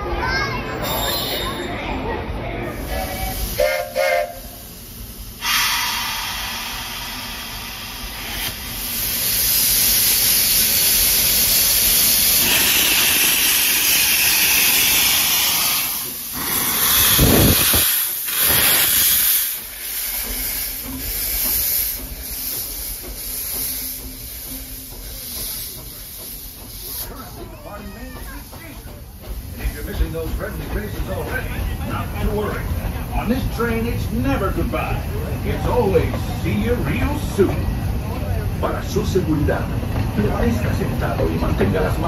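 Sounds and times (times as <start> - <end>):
steam locomotive venting steam: 2.7 - 42.0.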